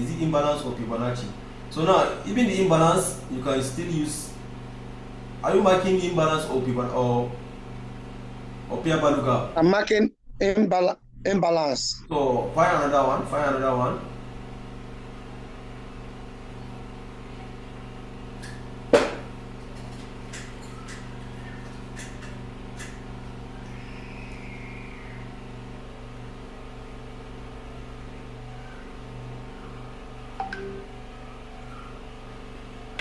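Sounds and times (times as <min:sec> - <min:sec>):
low electrical hum: 0:00.0 - 0:33.0
sharp knock: 0:19.0 - 0:19.2.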